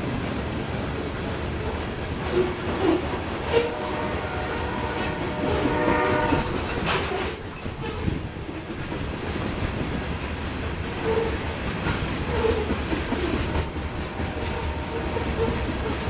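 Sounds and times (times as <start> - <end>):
train wheels clacking on rails: 0.0 - 16.0
locomotive horn: 3.4 - 8.0, 14.0 - 16.0.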